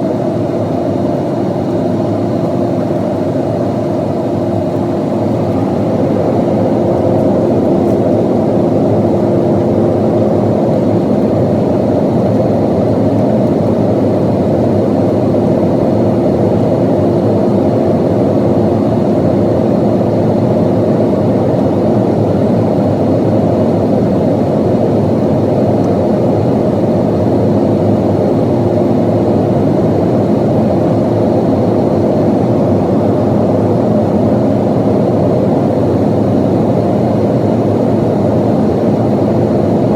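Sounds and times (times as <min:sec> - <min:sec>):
rushing airflow: 0:00.0 - 0:17.4
jet engine drone: 0:00.0 - 0:39.9
steady hums: 0:00.0 - 0:39.9.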